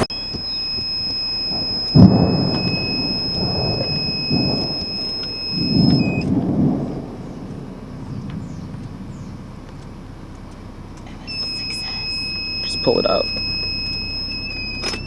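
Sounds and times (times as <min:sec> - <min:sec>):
high electronic tone: 0:00.0 - 0:06.4, 0:11.3 - 0:15.0
thunder rumbling: 0:00.0 - 0:14.8.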